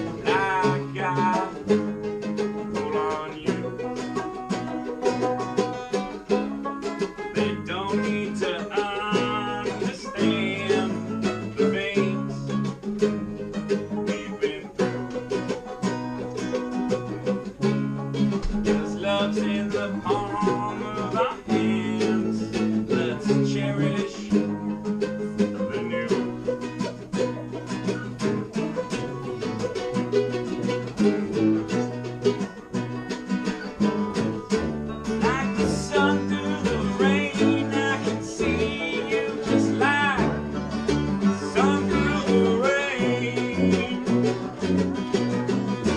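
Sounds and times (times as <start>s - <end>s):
banjo picking: 0.0s - 45.9s
guitar picking: 0.0s - 45.9s.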